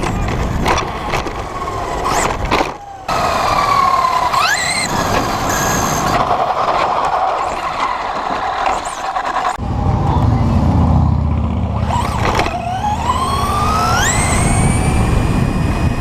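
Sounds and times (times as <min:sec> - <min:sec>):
electric motor whining: 0:00.0 - 0:06.3, 0:11.4 - 0:16.0.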